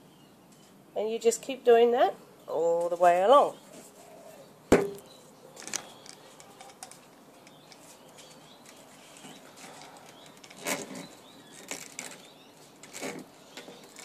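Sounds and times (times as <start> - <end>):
sharp knock with brief ring: 4.7 - 5.0.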